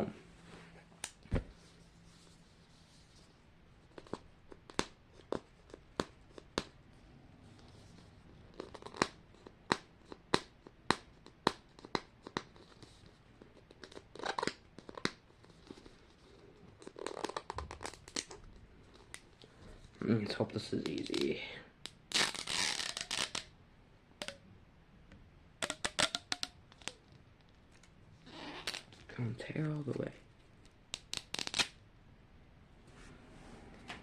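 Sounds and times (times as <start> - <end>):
plastic tearing: 22.1 - 23.5, 25.6 - 27.0, 30.9 - 31.8.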